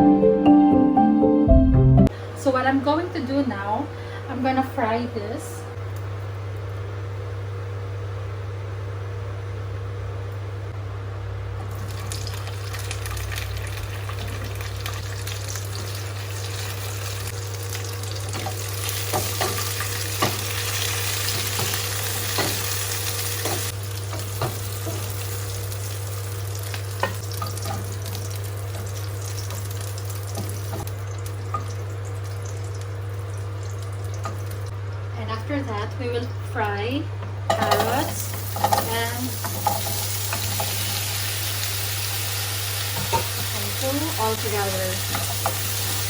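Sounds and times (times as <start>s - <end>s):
food sizzling in hot oil: 11.7s - 34.8s, 37.5s - 46.0s.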